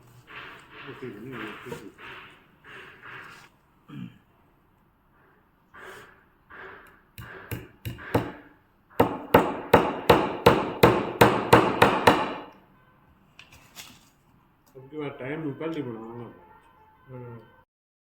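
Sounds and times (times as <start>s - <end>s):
hammer striking wood: 7.2s - 12.6s.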